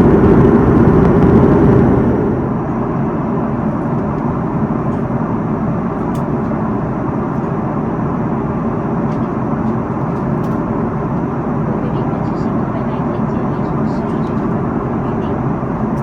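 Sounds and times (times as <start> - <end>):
airliner cabin roar: 0.0 - 16.0.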